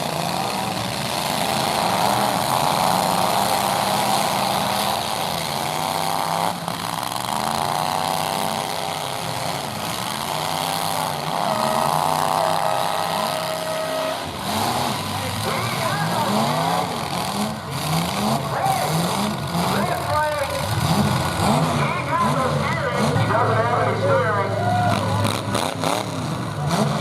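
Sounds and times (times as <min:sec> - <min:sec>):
pickup truck engines revving: 0:00.0 - 0:27.0.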